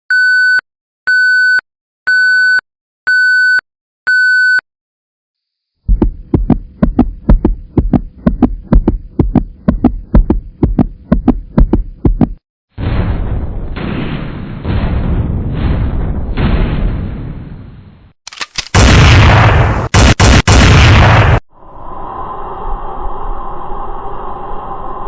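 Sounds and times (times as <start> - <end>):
heavy thumps: 5.9 - 12.4.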